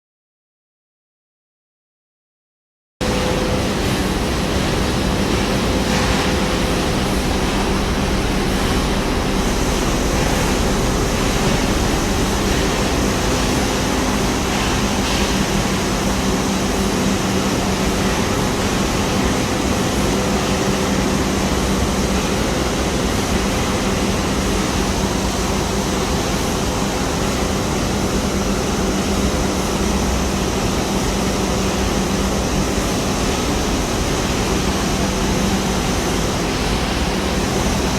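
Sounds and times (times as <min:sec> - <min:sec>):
low steady hum: 0:03.0 - 0:27.2
machinery line running: 0:03.0 - 0:37.9.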